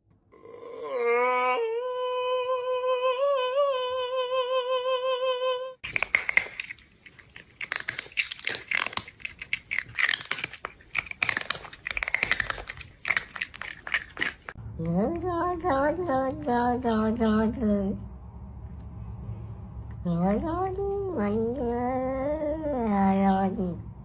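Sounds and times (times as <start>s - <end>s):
crisp crunching: 5.8s - 14.6s.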